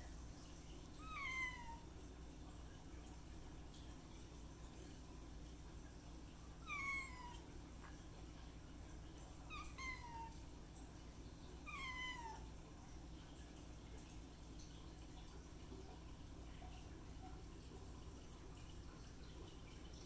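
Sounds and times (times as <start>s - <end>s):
kitten meowing: 1.0s - 1.8s, 6.7s - 7.4s, 9.5s - 10.4s, 11.7s - 12.4s.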